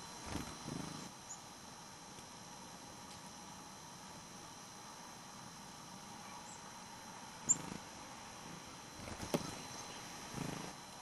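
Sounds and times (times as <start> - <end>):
wings fluttering: 0.2 - 1.1, 7.4 - 10.8
bird chirp: 9.2 - 10.7.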